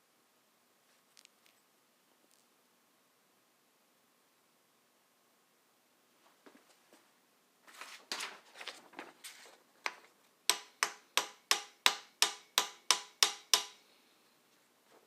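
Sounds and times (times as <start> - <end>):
handling and rustling: 6.3 - 10.2
sharp metallic taps: 10.5 - 13.8.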